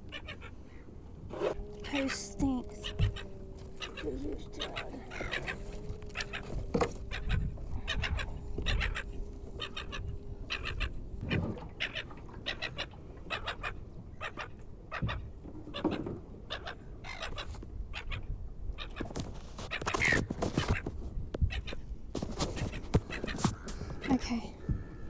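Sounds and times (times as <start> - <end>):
steady low hum: 0.0 - 11.7
seagull calling: 0.0 - 19.1, 22.4 - 25.0.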